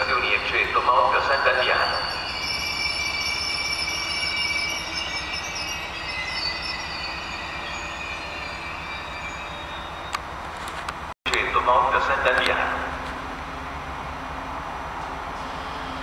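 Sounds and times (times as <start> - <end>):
train wheels squealing on rails: 0.0 - 10.8, 15.1 - 16.0
low train rumble: 0.0 - 16.0.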